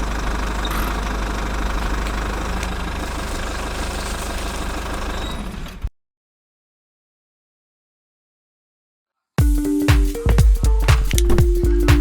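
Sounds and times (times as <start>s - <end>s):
engine idling with low rumble: 0.0s - 5.6s.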